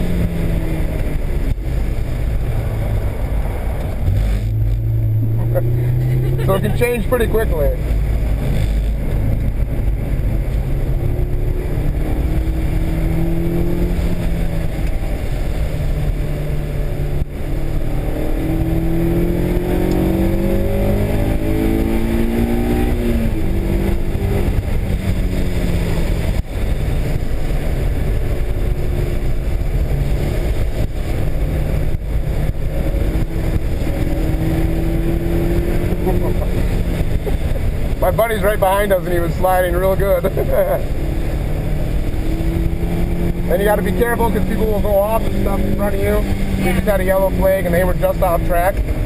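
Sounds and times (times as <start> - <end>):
car engine accelerating: 0.0 - 49.0
road and wind rumble: 0.0 - 49.0.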